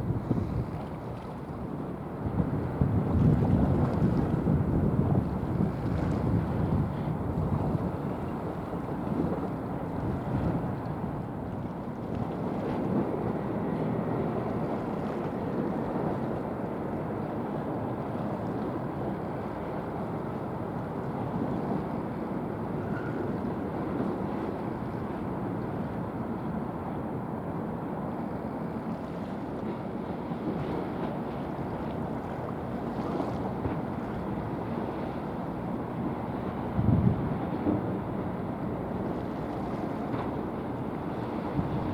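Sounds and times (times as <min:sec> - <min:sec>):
wind on microphone: 0:00.0 - 0:01.6, 0:02.2 - 0:12.9, 0:36.4 - 0:41.9
ship passing with wake: 0:00.0 - 0:41.9.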